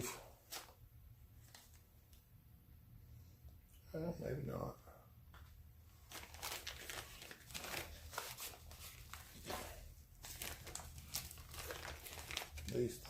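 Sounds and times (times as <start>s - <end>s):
packaging crinkling and rustling: 6.0s - 13.0s.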